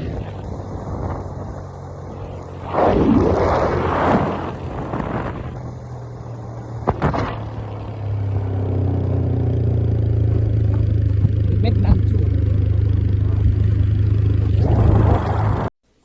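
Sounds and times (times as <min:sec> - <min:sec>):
motorcycle engine running: 0:00.0 - 0:15.7
vehicle rushing past: 0:00.0 - 0:15.7.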